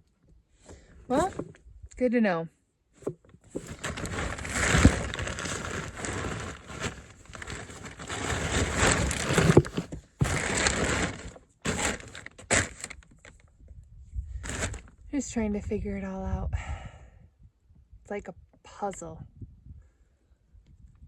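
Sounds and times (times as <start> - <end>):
plastic kayak scraping and knocking: 1.1 - 1.6, 3.0 - 13.0, 14.4 - 14.8.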